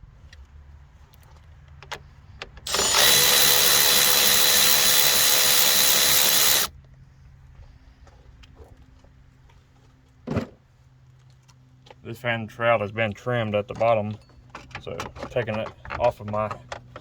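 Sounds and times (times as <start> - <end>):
electric ratchet running: 2.7 - 6.7.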